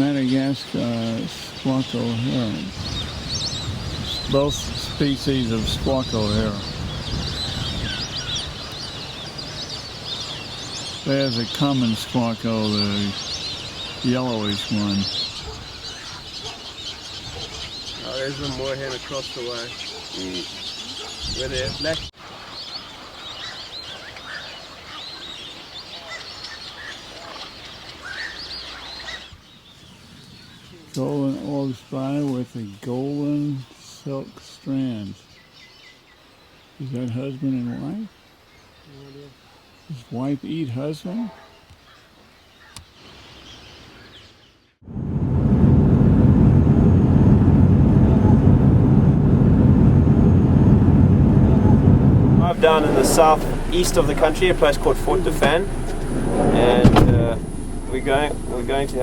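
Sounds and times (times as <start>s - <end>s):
birds chirping and squawking: 0.0s - 30.8s, 52.4s - 59.0s
low vehicle engine drone: 44.9s - 59.0s.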